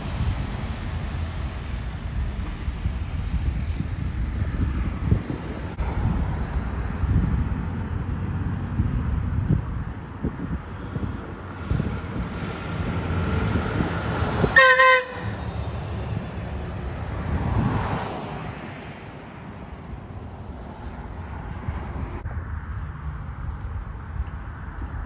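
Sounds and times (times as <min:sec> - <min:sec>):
heavy trucks rumbling past: 0:00.0 - 0:25.0
air horn blast: 0:14.5 - 0:15.5.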